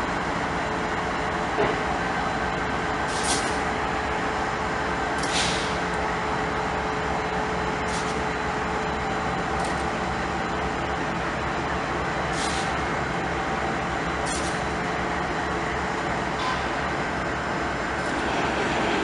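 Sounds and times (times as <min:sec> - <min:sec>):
train rumbling: 0:00.0 - 0:19.0
air hissing: 0:05.2 - 0:05.9, 0:12.3 - 0:12.8.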